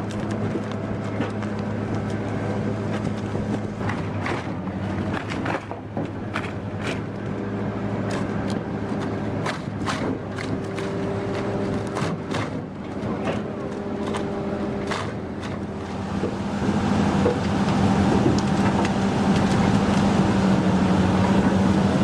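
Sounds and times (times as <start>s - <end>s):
wood cracking and snapping: 0.0s - 7.3s, 8.0s - 20.4s
wood chipper engine running: 0.0s - 22.0s.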